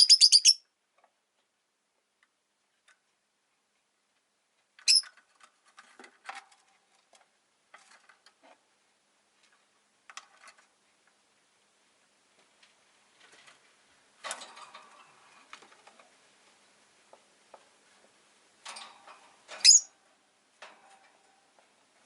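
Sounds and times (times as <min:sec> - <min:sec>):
lovebird chirps and clicks: 0:00.0 - 0:00.6, 0:04.8 - 0:05.1, 0:19.6 - 0:19.9.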